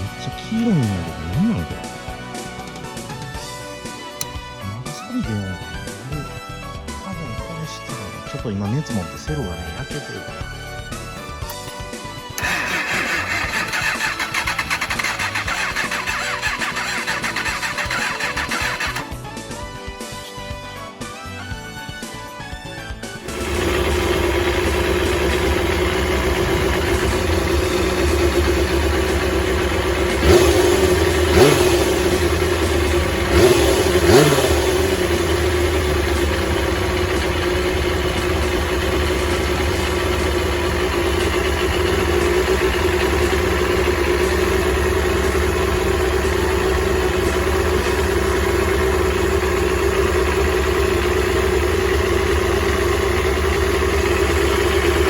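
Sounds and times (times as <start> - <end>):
motorcycle engine idling: 0.0 - 4.6, 9.1 - 19.3, 23.2 - 55.0
motorcycle throttle blips: 12.4 - 19.0, 23.2 - 55.0.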